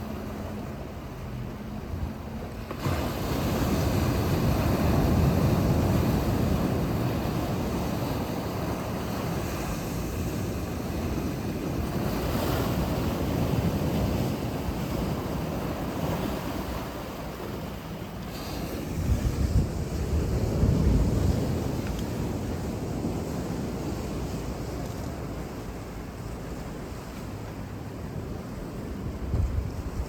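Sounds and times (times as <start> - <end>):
ocean waves washing: 0.0 - 30.0
wind buffeting the microphone: 2.8 - 30.0.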